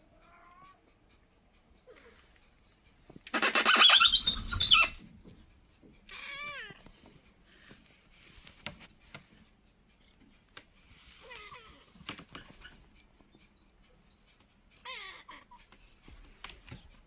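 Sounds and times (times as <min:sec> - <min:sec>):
cat crying harshly: 0:03.4 - 0:05.0
cat meowing: 0:06.1 - 0:06.8, 0:14.8 - 0:15.6.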